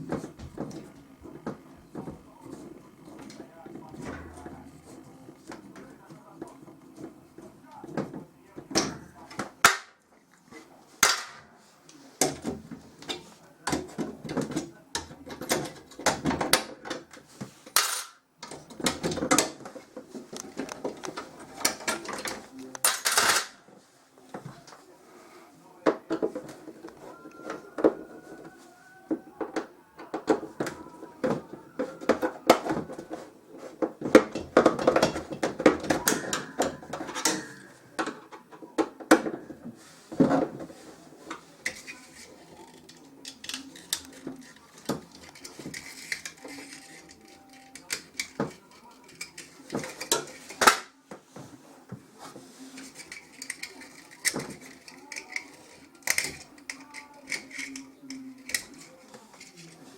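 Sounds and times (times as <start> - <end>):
metal tools clinking and knocking: 17.7 - 19.7, 20.3 - 23.6, 34.1 - 38.5, 52.8 - 59.9.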